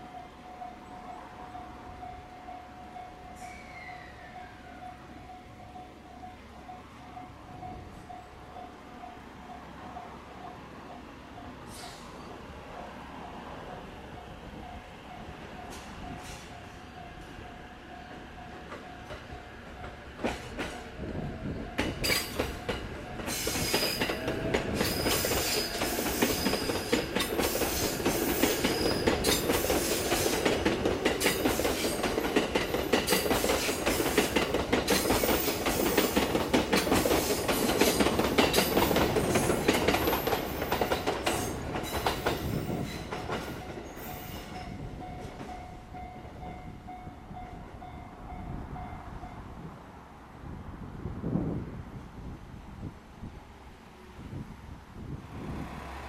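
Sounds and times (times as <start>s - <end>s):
electric train passing: 0.0s - 56.0s
wheels clattering over rail joints: 21.8s - 45.6s.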